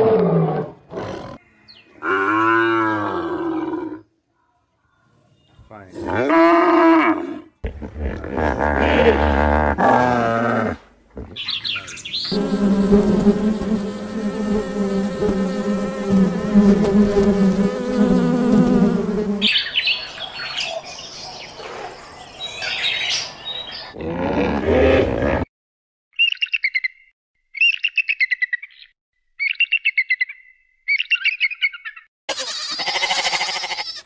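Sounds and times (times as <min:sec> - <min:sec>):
insect buzzing: 0:12.3 - 0:19.6.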